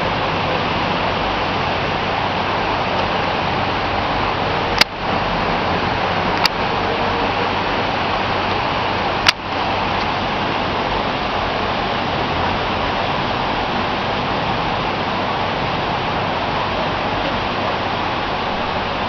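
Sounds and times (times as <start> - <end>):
rushing hiss of rainstorm: 0.0 - 19.0
sharp click: 4.8 - 5.0, 6.4 - 6.6.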